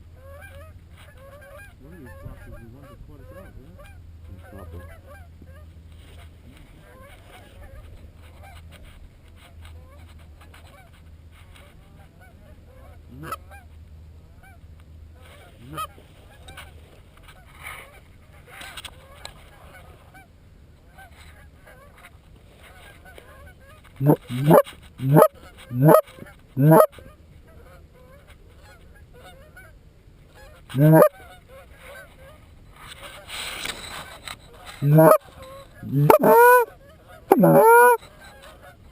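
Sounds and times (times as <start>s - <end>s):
distant geese honking: 24.0s - 27.0s, 30.7s - 31.3s, 34.8s - 36.7s, 37.3s - 38.3s
loud close goose honks: 24.0s - 27.0s, 30.8s - 31.3s, 34.8s - 35.2s, 35.8s - 36.7s, 37.3s - 38.0s.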